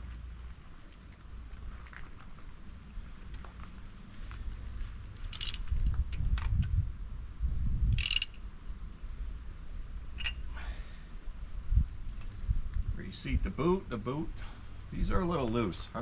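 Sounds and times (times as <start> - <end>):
low rumbling handling noise: 0.0 - 8.8
socket wrench clinks: 7.9 - 8.4, 10.2 - 10.6.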